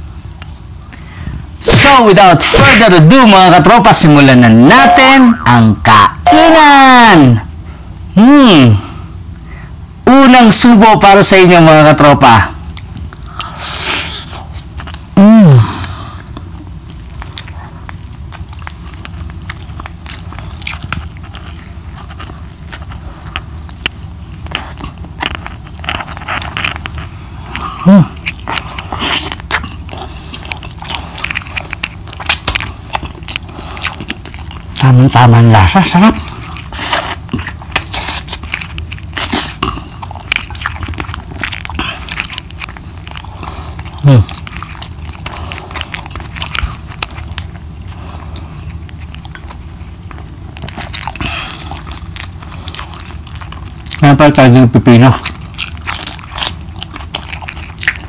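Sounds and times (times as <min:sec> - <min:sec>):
man chewing food: 0:00.0 - 0:58.0
man humming mmm: 0:15.2 - 0:16.2, 0:27.8 - 0:28.2.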